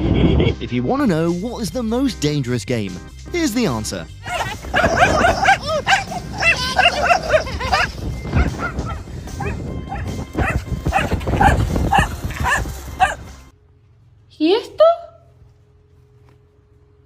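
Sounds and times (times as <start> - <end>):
dog barking and yipping: 4.2 - 13.3.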